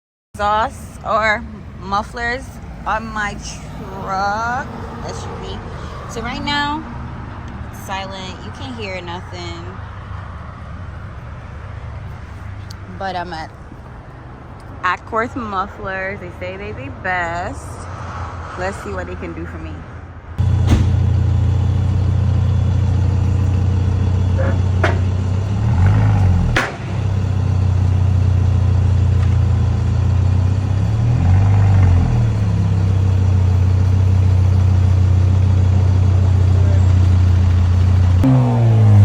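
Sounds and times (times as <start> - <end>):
engine idling with deep drone: 20.4 - 39.0.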